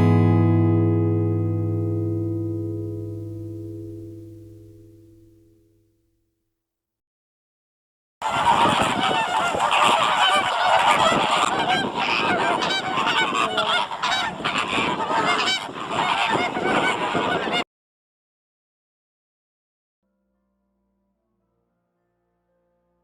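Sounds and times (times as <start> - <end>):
geese honking: 8.2 - 17.6.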